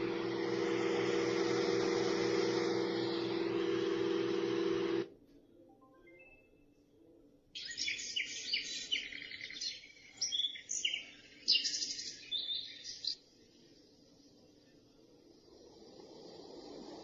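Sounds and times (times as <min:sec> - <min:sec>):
recorded birdsong from speaker: 0:05.4 - 0:15.6.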